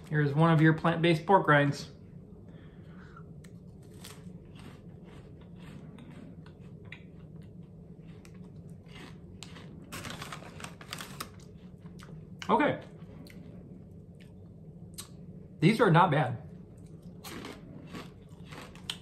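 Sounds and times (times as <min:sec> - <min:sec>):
crunchy chewing crackles: 0:03.4 - 0:15.2, 0:16.7 - 0:19.0.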